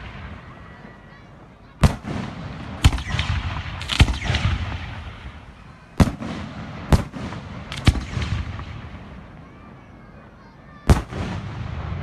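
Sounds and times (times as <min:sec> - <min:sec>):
fireworks bangs: 0:00.0 - 0:12.0
fireworks crackling and rumbling: 0:00.0 - 0:12.0.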